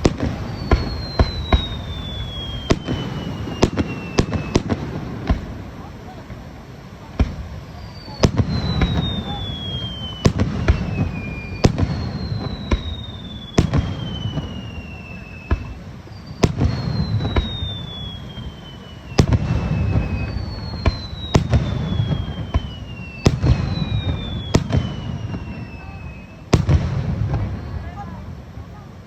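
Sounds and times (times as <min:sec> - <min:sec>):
whistling firework shells: 0:00.0 - 0:05.8, 0:07.2 - 0:28.8.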